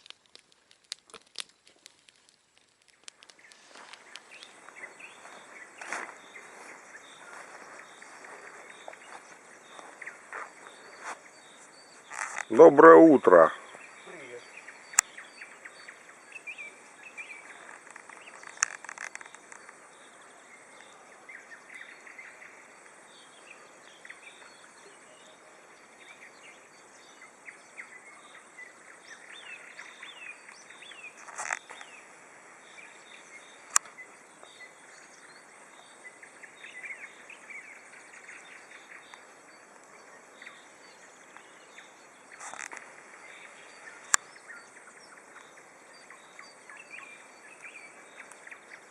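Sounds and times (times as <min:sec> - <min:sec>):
sharp clicks: 0:00.0 - 0:04.6, 0:42.4 - 0:42.9
insects chirring: 0:00.0 - 0:48.9
birds singing: 0:02.9 - 0:48.9.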